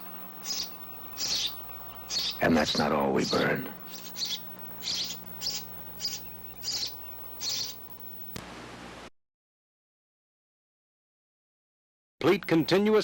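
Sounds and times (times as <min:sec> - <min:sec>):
bird chirping: 0:00.0 - 0:08.0
steady electrical hum: 0:00.0 - 0:09.1.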